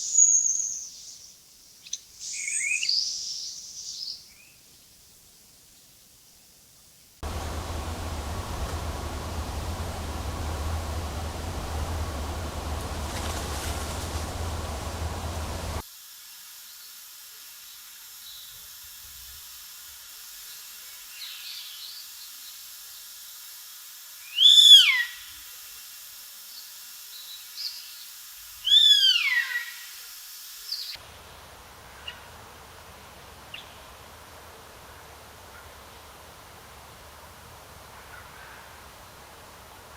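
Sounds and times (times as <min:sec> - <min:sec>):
faint bird chirps: 0:00.0 - 0:04.7
high hiss of forest ambience: 0:00.0 - 0:39.9
bird call rising and falling: 0:07.2 - 0:15.8.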